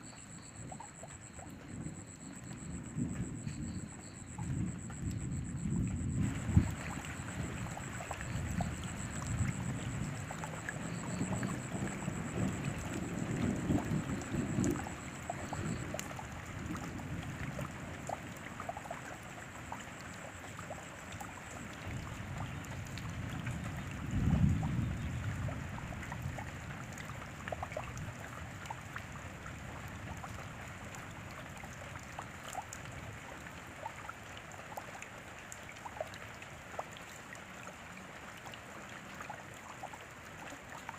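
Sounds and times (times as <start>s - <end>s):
raindrops ticking: 0.0s - 40.9s
steady rain falling: 0.0s - 40.9s
low thunder rumbling: 1.5s - 18.6s, 21.8s - 26.8s.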